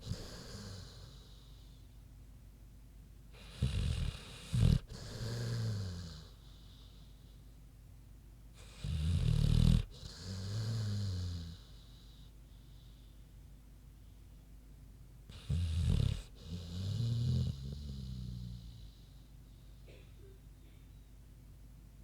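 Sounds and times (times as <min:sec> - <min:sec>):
dog snoring: 0:00.0 - 0:01.7, 0:03.3 - 0:07.0, 0:08.6 - 0:12.3, 0:15.3 - 0:19.2.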